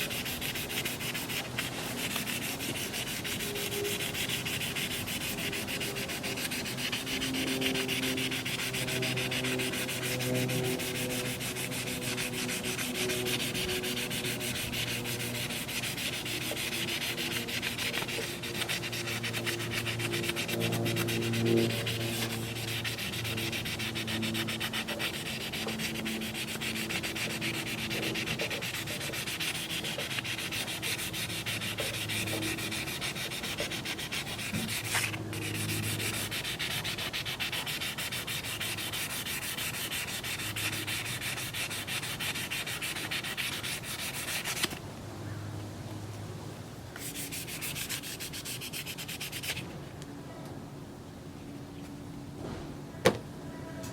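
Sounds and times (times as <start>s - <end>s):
abrasive pad sanding: 0.0s - 44.8s, 47.0s - 49.7s.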